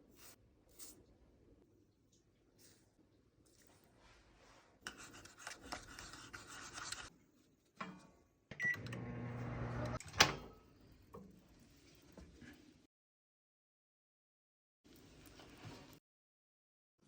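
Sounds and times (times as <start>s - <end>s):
microwave beep: 8.5s - 10.0s
microwave oven humming: 8.5s - 10.0s.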